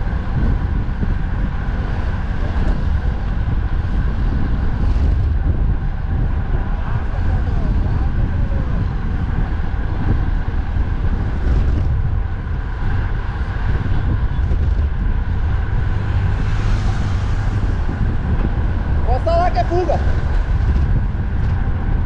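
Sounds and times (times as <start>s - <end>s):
road traffic: 0.0s - 22.0s
wind buffeting microphone: 0.0s - 22.0s.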